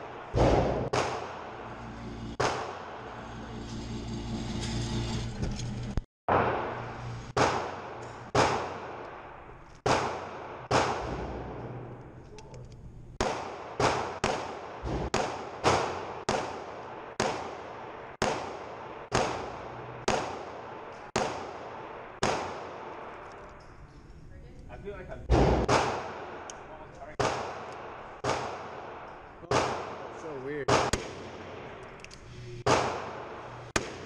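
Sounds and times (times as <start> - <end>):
pistol shots: 0.0 - 3.2, 6.3 - 9.2, 9.8 - 11.9, 13.2 - 23.2, 25.3 - 31.9, 32.6 - 34.0.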